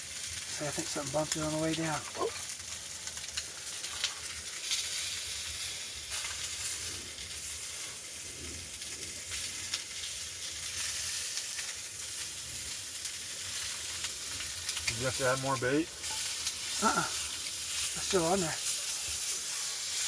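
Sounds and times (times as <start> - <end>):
chicken sizzling in a pan: 0.0 - 20.0.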